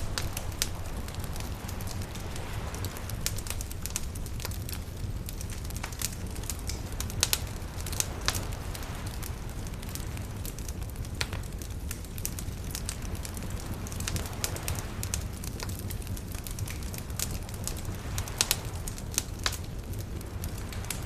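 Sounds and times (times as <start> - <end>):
waves rushing: 0.0 - 10.4
bonfire crackling and popping: 0.0 - 21.0.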